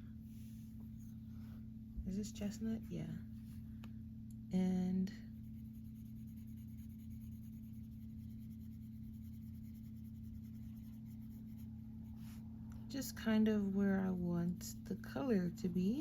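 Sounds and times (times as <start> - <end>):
low electrical hum: 0.0 - 16.0
pencil scratching on paper: 5.4 - 12.4.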